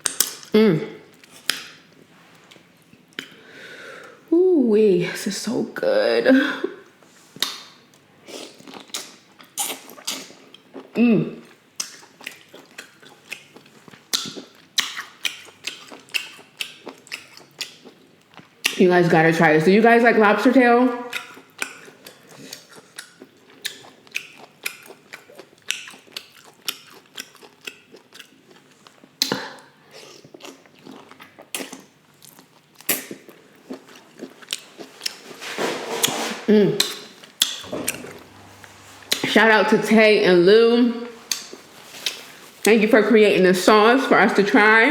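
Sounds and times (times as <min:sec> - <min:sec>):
wet chewing clicks and smacks: 0:07.4 - 0:08.0, 0:08.6 - 0:10.9, 0:11.8 - 0:18.8, 0:21.1 - 0:29.4, 0:30.1 - 0:35.3, 0:36.8 - 0:38.4, 0:41.3 - 0:42.2
wet mouth clicks: 0:41.3 - 0:42.2.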